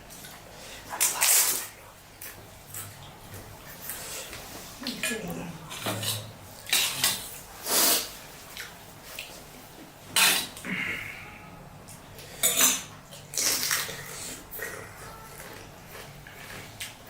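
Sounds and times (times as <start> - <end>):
crunching and slurping: 0.0 - 5.0, 5.6 - 11.3, 11.9 - 17.0
dishes and cutlery clinking: 12.4 - 13.0.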